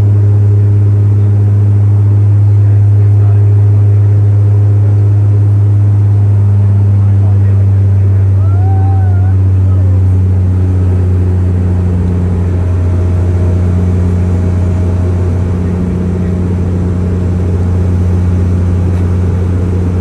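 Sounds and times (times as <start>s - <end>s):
propeller drone: 0.0s - 20.0s
engine and air rush: 9.4s - 20.0s.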